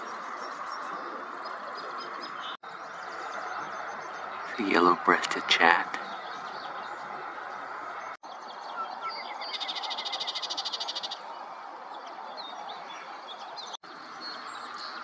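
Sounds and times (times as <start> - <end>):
songbird trilling: 8.7 - 11.3.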